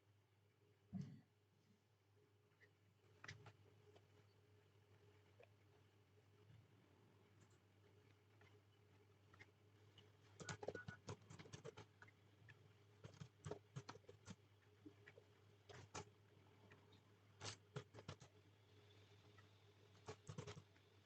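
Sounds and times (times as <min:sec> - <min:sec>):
low steady hum: 0:00.0 - 0:21.0
computer keyboard typing: 0:10.4 - 0:11.9, 0:17.4 - 0:18.3, 0:20.0 - 0:20.6.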